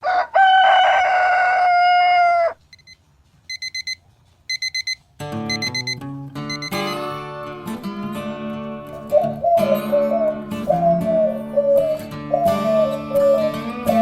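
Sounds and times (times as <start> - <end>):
rooster crowing: 0.0 - 2.6
electronic alarm clock beeps: 2.7 - 7.2
acoustic guitar music: 5.2 - 14.0.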